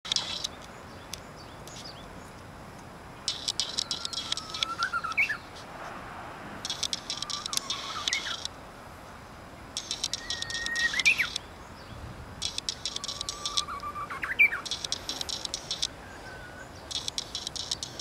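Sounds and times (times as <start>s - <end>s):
rapid ticking chatter: 0.1s - 1.8s, 3.2s - 5.6s, 6.6s - 8.6s, 9.6s - 11.8s, 12.4s - 16.0s, 16.6s - 18.0s
bird whistling song: 3.3s - 5.5s, 6.9s - 8.5s, 9.9s - 12.0s, 12.7s - 18.0s.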